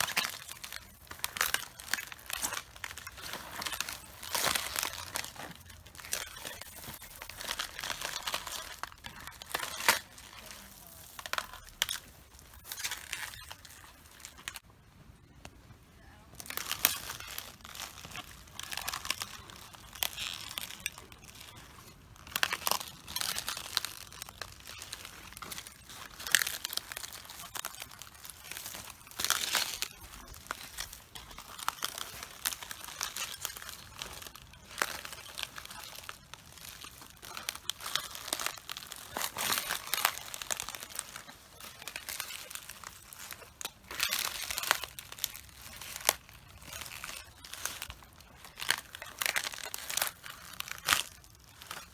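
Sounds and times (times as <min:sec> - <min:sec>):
footsteps crushing cabbages: 0:00.0 - 0:14.6, 0:16.3 - 0:51.9.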